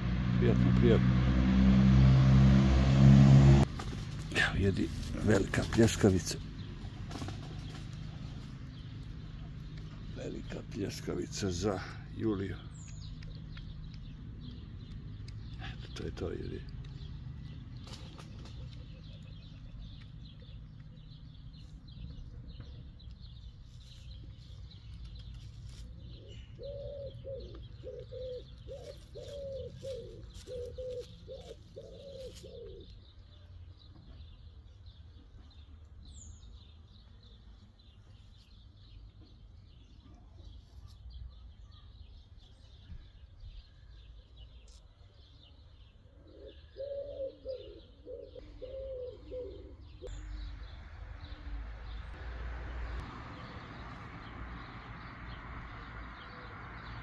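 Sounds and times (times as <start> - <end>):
small birds chirping: 3.6 - 57.0
low cooing bird call: 26.0 - 34.3, 45.2 - 52.1
low rumble: 50.0 - 54.5.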